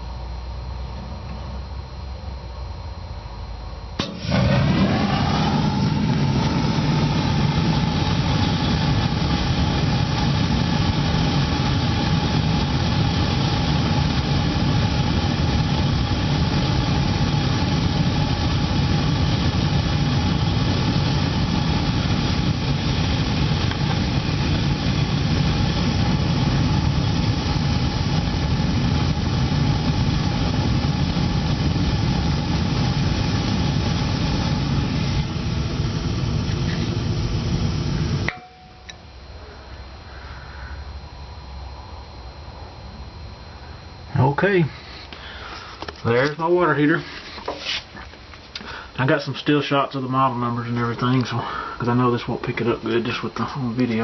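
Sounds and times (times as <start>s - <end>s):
gas burner igniting and rushing: 4.0s - 38.9s, 43.0s - 54.0s
faint tone: 38.3s - 44.1s.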